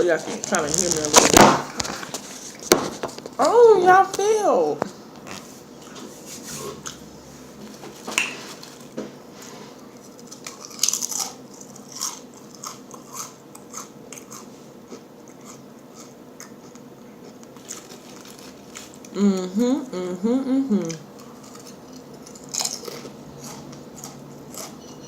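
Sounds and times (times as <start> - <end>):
person chewing crunchy food: 8.2 - 19.2, 20.8 - 25.0.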